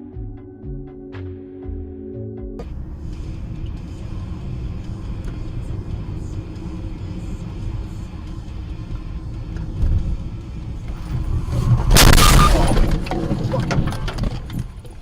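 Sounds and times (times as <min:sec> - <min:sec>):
road rumble: 0:02.6 - 0:15.0
car crash: 0:10.8 - 0:15.0
debris clattering: 0:10.9 - 0:15.0.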